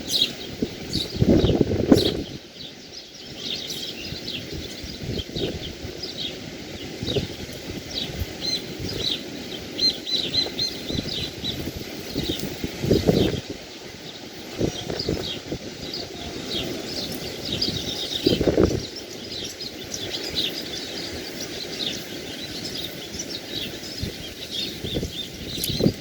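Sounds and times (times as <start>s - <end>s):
rushing sea or wind: 0.0s - 26.0s
small birds chirping: 0.0s - 26.0s.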